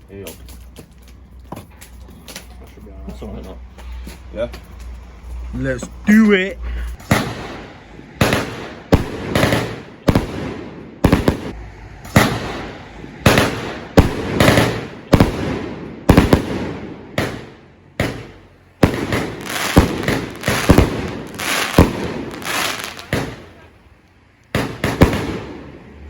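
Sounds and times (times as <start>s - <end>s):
firework cake bangs: 7.0s - 23.6s, 24.6s - 25.8s.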